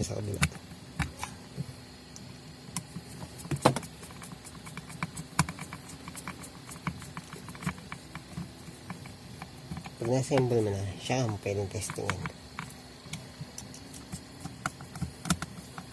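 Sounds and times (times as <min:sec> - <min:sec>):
plastic parts clicking and tapping: 0:11.2 - 0:15.9.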